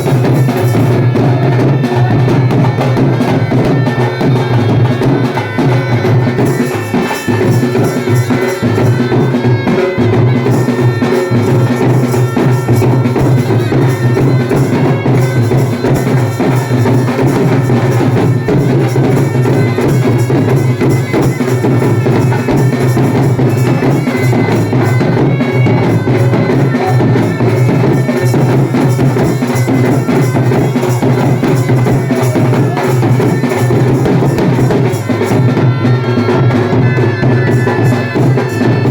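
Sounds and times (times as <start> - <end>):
drum accompaniment: 0.0 - 38.9
reed pipe folk tune: 0.0 - 38.9.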